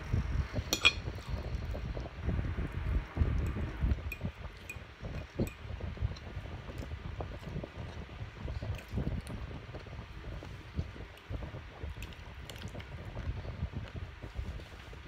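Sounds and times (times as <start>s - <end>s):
metal fork clinking on plate: 0.7s - 1.1s
chewing with wet mouth sounds: 1.1s - 15.0s.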